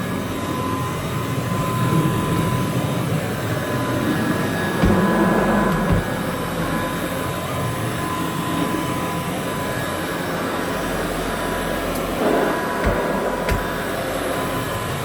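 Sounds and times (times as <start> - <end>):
vacuum cleaner motor whine: 0.0 - 15.0
brief knocks: 4.8 - 6.2, 12.8 - 13.9.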